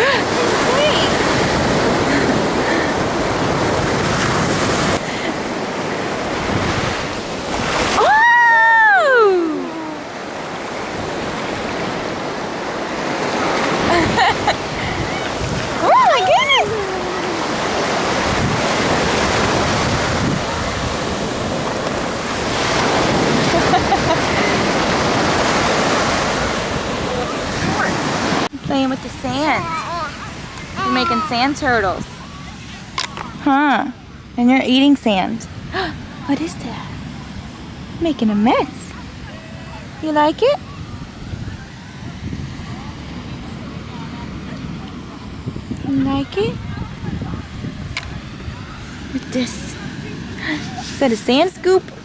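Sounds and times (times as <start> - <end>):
ocean surf washing on shore: 0.0 - 52.0
wind buffeting microphone: 0.0 - 52.0
drawn-out high call: 7.8 - 10.7, 14.6 - 19.1.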